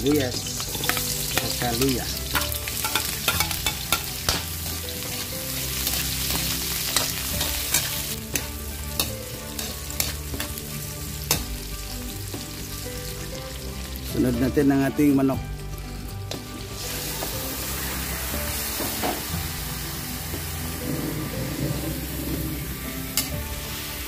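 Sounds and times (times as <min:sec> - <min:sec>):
food sizzling in hot oil: 0:00.0 - 0:24.0
metal spatula scraping a wok: 0:02.3 - 0:04.8, 0:05.8 - 0:10.5.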